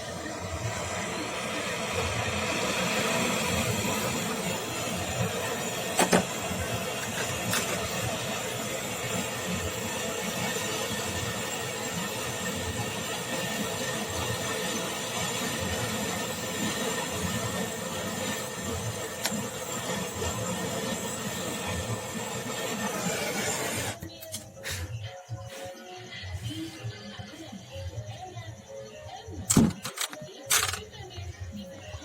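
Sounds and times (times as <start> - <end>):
sharp clicks: 29.5 - 30.8.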